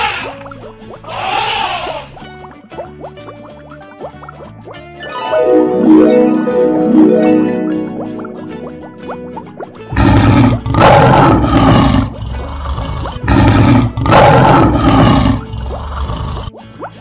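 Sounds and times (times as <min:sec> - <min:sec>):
lion roaring: 0:09.9 - 0:16.5.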